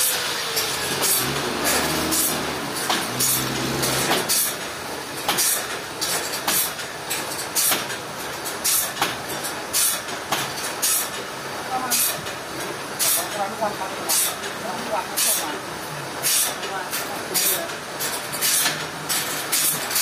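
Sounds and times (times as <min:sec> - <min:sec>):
sawmill machinery running: 0:00.0 - 0:06.8.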